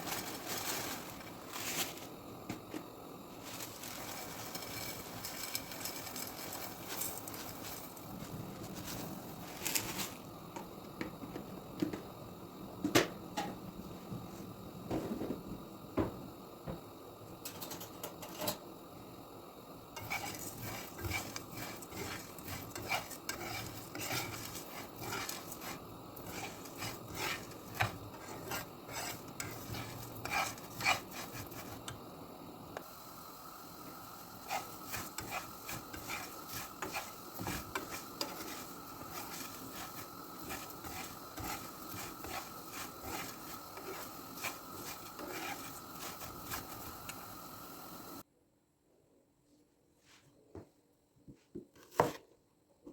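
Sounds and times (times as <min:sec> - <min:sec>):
food sizzling: 0:00.0 - 0:12.4, 0:17.4 - 0:48.2
utensil scraping and clinking pan: 0:03.5 - 0:09.0, 0:20.0 - 0:32.0, 0:34.3 - 0:47.5.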